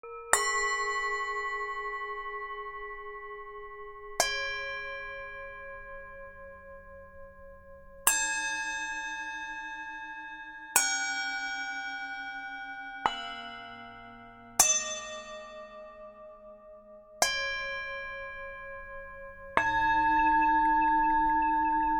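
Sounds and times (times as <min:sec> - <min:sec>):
singing bowls ringing: 0:00.1 - 0:09.5, 0:17.2 - 0:21.9.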